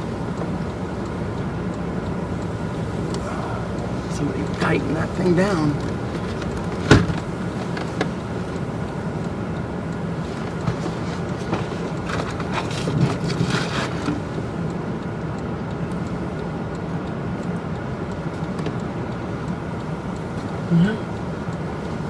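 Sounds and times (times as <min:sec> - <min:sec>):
vehicle cabin rumble: 0:00.0 - 0:22.0.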